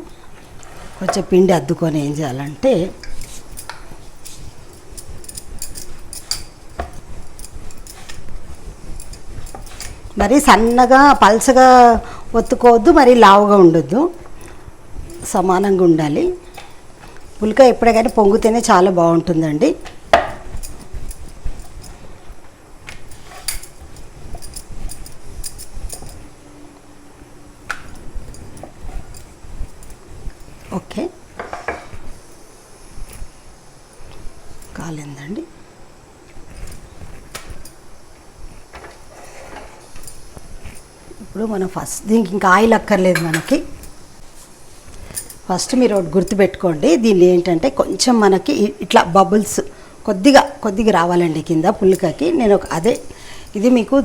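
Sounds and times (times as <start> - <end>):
rolling pin rolling dough: 0.0 - 26.5.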